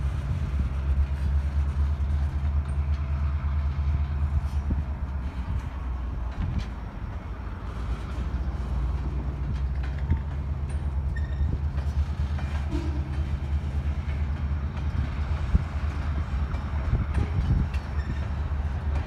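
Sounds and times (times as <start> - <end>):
freight train wheels rumbling: 0.0 - 19.0
faint squeaks: 11.1 - 11.6.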